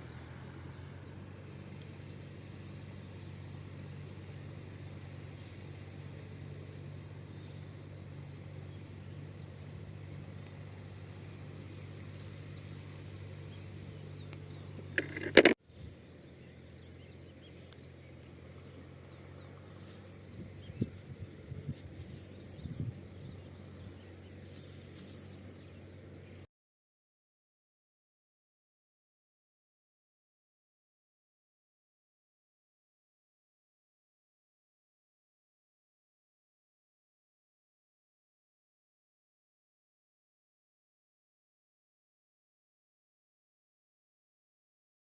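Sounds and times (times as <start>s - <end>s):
bird chirping: 0.0s - 26.4s
low hum: 0.0s - 26.5s.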